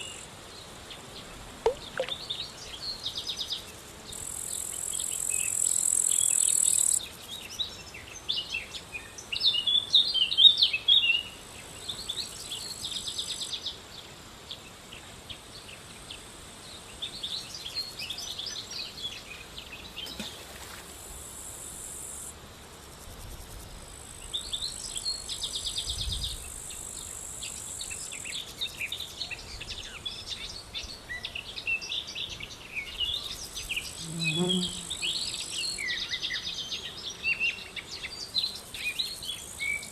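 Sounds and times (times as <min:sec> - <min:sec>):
high insect buzzing: 0:00.0 - 0:07.5, 0:33.2 - 0:39.9
birds chirping: 0:01.7 - 0:02.2.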